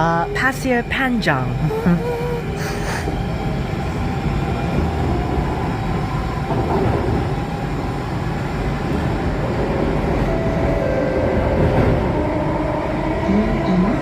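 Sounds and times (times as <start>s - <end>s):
metro train running rumble: 0.0s - 14.0s.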